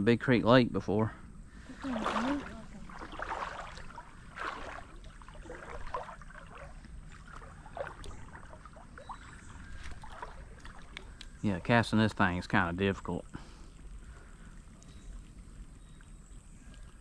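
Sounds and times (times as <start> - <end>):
creek water sloshing: 1.5 - 17.0.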